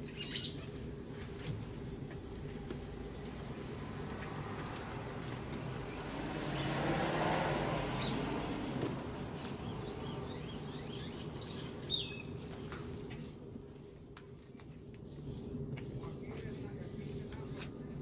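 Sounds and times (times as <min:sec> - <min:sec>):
birds chirping: 0:00.0 - 0:13.9
steady motor hum: 0:00.0 - 0:18.0.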